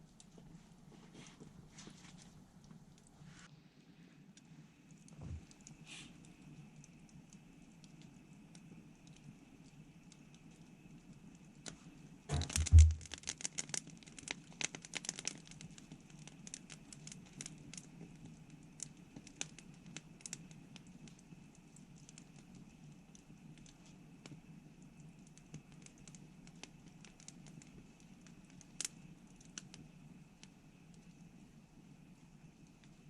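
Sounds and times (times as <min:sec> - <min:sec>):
campfire crackling: 0:00.0 - 0:33.0
dull thump: 0:12.3 - 0:13.2.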